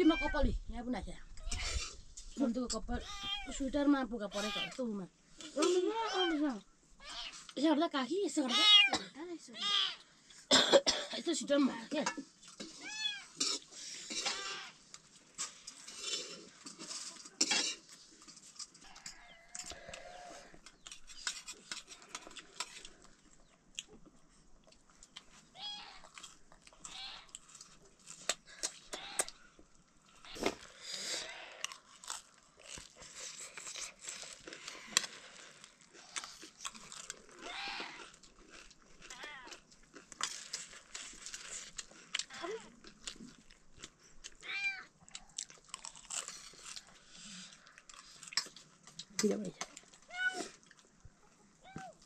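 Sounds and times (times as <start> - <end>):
crunching and chewing snacks: 12.4 - 52.0
faint animal calls: 18.8 - 20.6, 28.5 - 31.8, 37.4 - 38.1
small clicks and crackles: 31.4 - 50.9.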